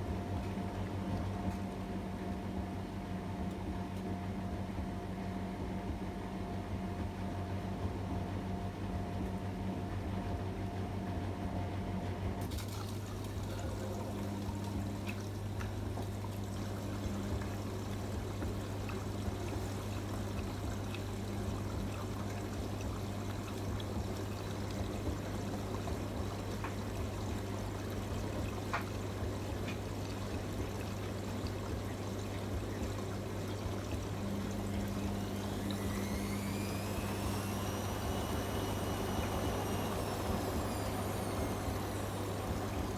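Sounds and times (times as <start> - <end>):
drum motor whine: 0.0 - 42.9
washing machine water flow: 0.0 - 42.9
electric hum: 12.2 - 42.9.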